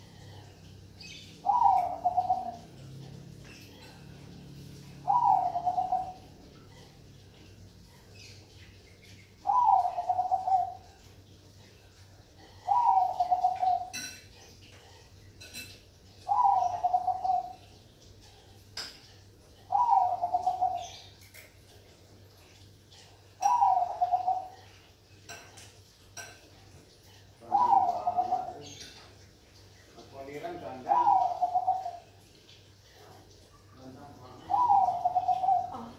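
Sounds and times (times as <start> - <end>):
dove cooing: 1.1 - 8.1, 9.4 - 11.4, 12.3 - 14.1, 16.2 - 17.9, 19.6 - 21.1, 22.9 - 24.8, 27.2 - 28.8, 30.5 - 32.3, 34.1 - 35.9.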